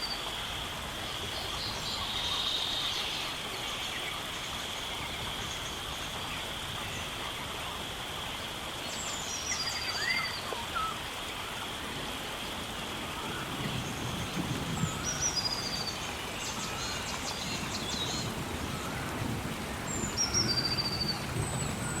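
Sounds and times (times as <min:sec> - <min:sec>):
steady hiss: 0:00.0 - 0:22.0
bird whistle and trill: 0:09.6 - 0:11.0, 0:20.0 - 0:22.0.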